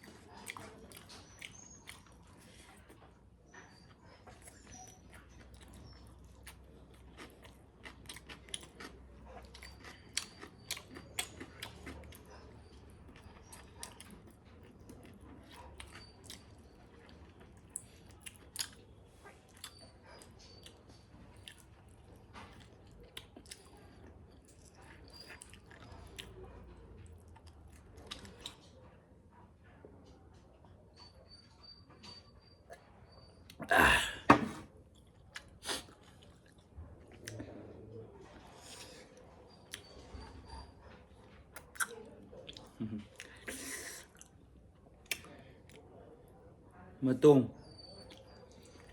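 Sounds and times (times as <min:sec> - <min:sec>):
person chewing and biting: 0:06.4 - 0:12.2, 0:41.6 - 0:44.3.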